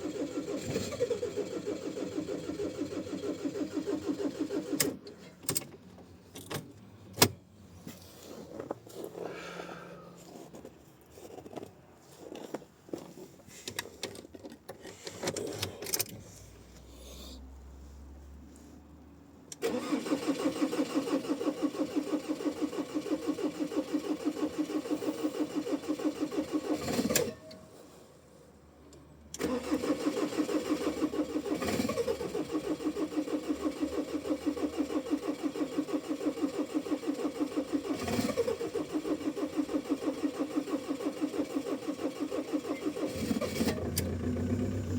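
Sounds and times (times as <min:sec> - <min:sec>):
engine cranking: 0:00.0 - 0:05.6, 0:19.5 - 0:27.4, 0:29.3 - 0:44.9.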